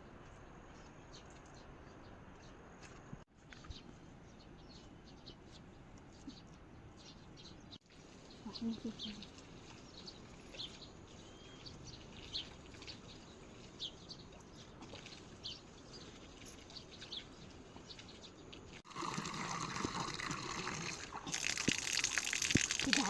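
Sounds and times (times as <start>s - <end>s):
small birds chirping: 0.1s - 18.8s, 19.7s - 23.0s
rushing water: 17.9s - 23.0s.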